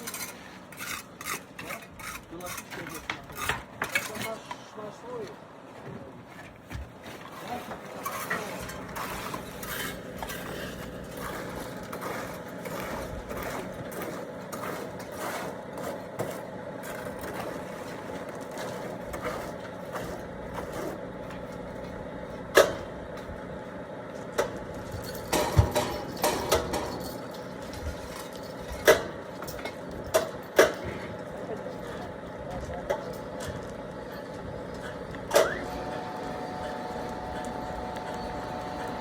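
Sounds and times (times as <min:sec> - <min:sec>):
truck engine running: 0:31.2 - 0:39.0.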